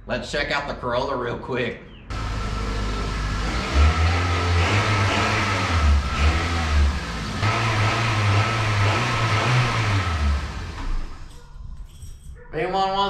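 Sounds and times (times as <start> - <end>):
steady high whine: 2.1 - 9.4
car engine revving: 2.1 - 11.3.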